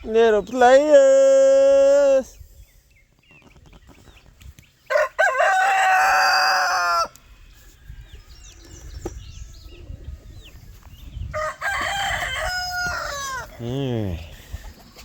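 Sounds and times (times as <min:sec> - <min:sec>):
chicken chirps and clucks: 0:02.6 - 0:13.6
rooster crowing: 0:04.9 - 0:07.2, 0:11.3 - 0:13.6.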